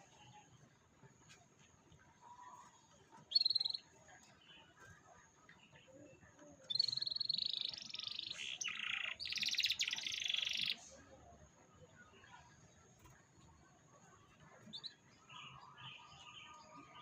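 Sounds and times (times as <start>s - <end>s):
canary singing trilled song: 3.2s - 4.8s, 6.6s - 10.9s.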